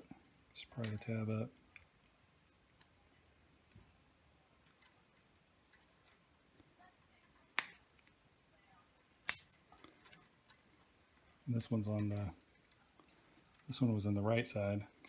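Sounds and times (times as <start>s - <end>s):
sharp plastic snap: 7.6s - 8.1s.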